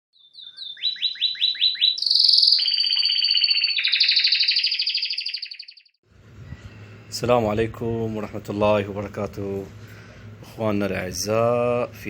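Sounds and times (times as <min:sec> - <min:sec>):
songbird singing: 0:00.1 - 0:06.0.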